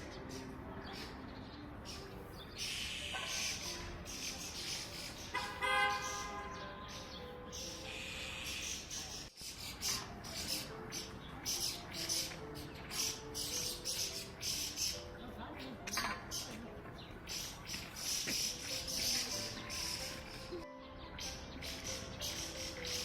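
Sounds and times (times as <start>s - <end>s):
birds chirping and calling: 0.0s - 23.0s
loud harsh bird call: 1.9s - 15.0s, 17.3s - 23.0s.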